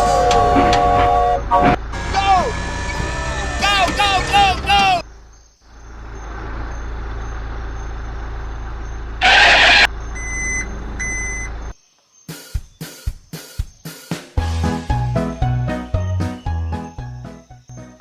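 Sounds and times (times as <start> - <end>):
truck engine running: 0.0 - 11.7
reversing beeps: 9.2 - 11.5.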